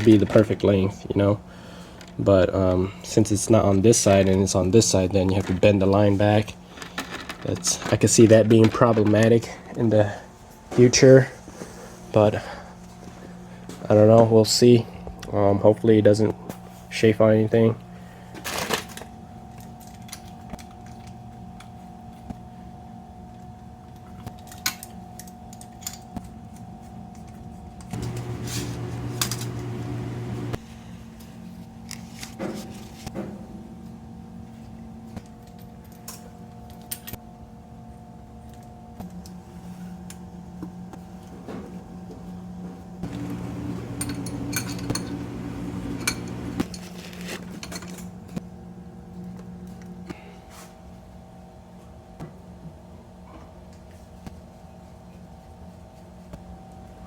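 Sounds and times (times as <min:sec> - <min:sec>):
steady low hum: 0:09.4 - 0:46.8
steady hum: 0:27.8 - 0:31.9, 0:42.9 - 0:46.8
metallic clinks of tools: 0:43.9 - 0:45.2.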